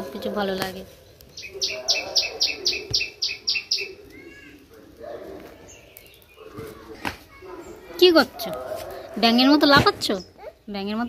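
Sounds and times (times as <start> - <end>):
bird chirping: 0.9 - 8.3.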